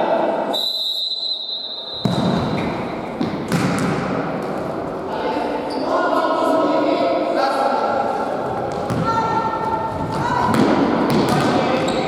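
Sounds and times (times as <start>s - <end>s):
ball kicked and bouncing on floor: 2.0s - 4.0s, 8.7s - 9.2s
players' voices and shouts: 4.7s - 12.0s.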